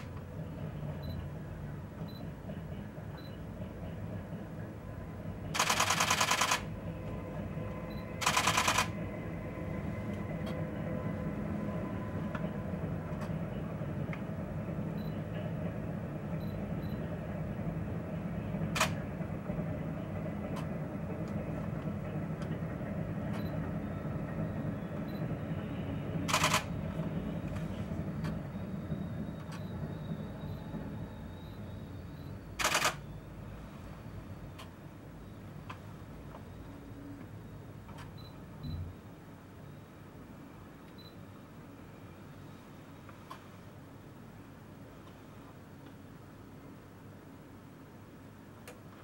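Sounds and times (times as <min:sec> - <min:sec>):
freight train rumbling past: 0:00.0 - 0:37.8.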